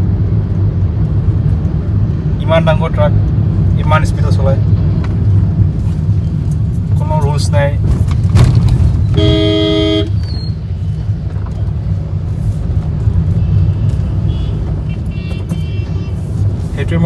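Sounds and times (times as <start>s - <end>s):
car driving on highway: 0.0s - 17.0s
vehicle horn: 9.1s - 10.4s, 13.3s - 16.3s.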